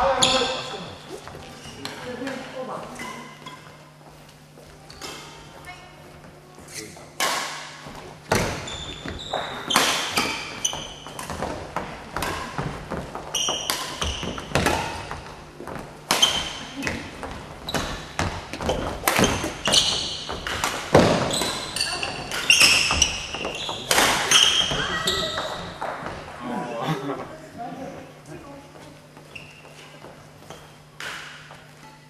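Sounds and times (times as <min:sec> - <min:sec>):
shoes squeaking on gym floor: 0:00.0 - 0:02.1, 0:02.8 - 0:05.1, 0:08.1 - 0:26.2, 0:28.8 - 0:32.0.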